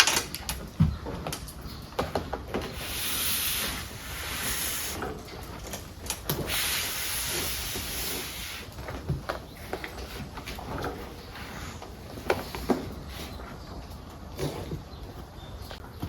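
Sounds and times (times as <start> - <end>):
strong hissing spray: 2.8 - 5.0, 6.4 - 8.7.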